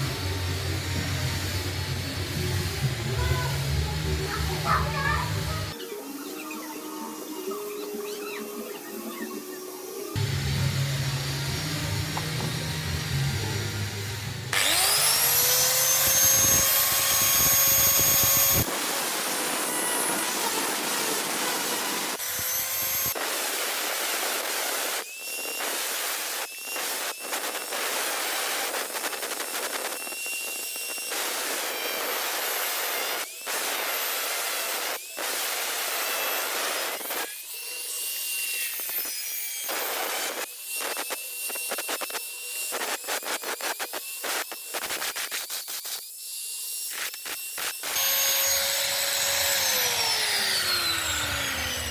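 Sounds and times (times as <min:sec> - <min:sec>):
grinder grinding metal: 0:00.0 - 0:51.9
power tool motor spinning: 0:11.2 - 0:46.0, 0:46.6 - 0:51.9.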